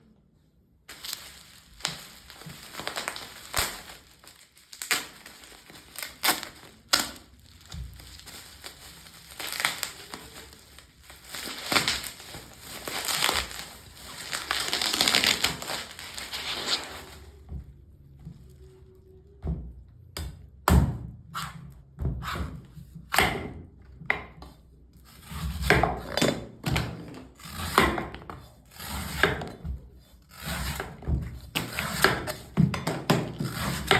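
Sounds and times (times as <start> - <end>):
blade scraping coconut: 30.2 - 32.5.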